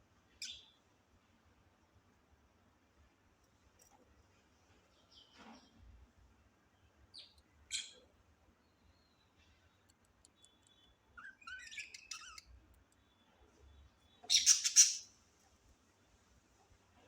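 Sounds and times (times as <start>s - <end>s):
parrots calling: 14.2s - 15.1s.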